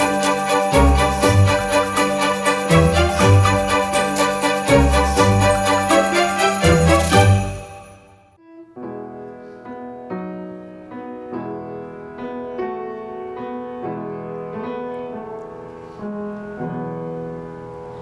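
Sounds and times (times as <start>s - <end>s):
piano playing slow chords: 0.0s - 18.0s.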